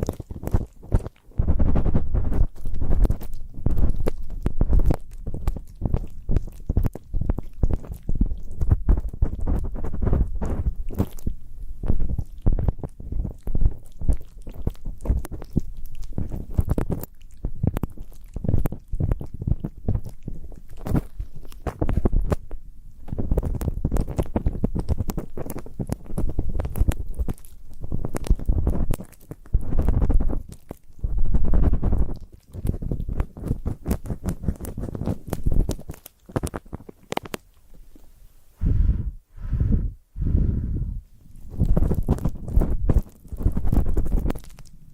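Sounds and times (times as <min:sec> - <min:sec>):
low muffled rumble: 0:38.1 - 0:44.9.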